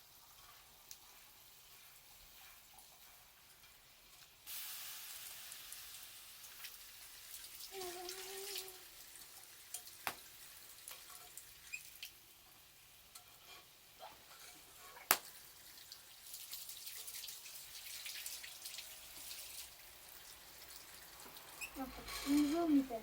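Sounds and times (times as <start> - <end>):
faint hiss: 4.3 - 10.6
campfire crackling and popping: 9.2 - 12.2, 14.9 - 16.4.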